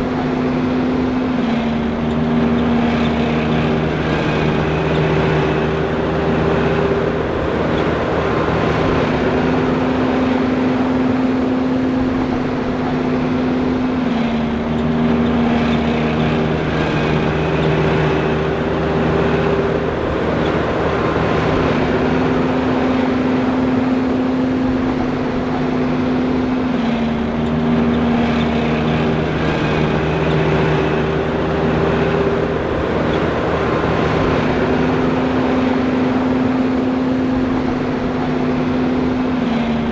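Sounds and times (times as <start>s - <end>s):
forage harvester engine droning: 0.0s - 39.9s
machine whining tones: 14.4s - 24.2s, 24.8s - 39.9s.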